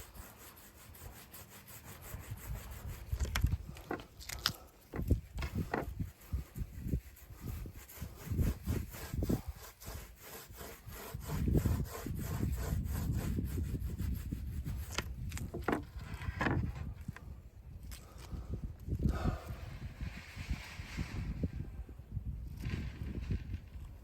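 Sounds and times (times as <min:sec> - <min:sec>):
hand rubbing on hard surface: 0:00.0 - 0:16.4.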